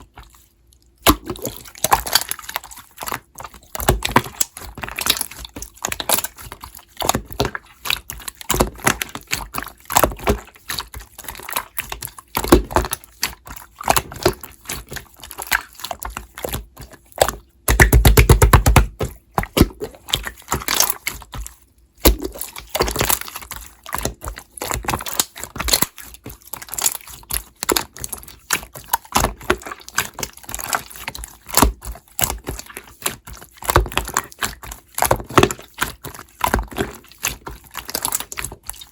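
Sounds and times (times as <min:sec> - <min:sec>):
sticky clicks and bubble pops: 0:16.5 - 0:20.9.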